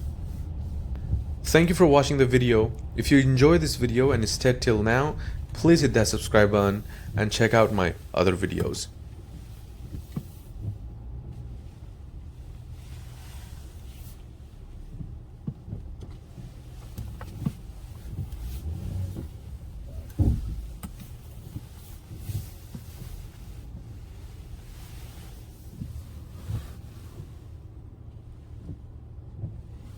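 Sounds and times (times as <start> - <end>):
pickup truck driving rumble: 0.0 - 12.3
thump: 20.2 - 20.6.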